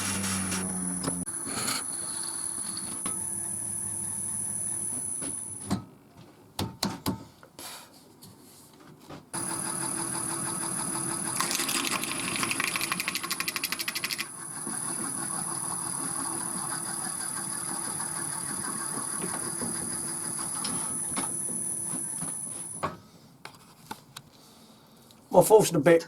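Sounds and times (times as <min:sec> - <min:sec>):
wood lathe hum and whine: 0:00.0 - 0:05.6, 0:09.4 - 0:12.9, 0:14.1 - 0:22.8
drill bit chatter: 0:11.2 - 0:14.5.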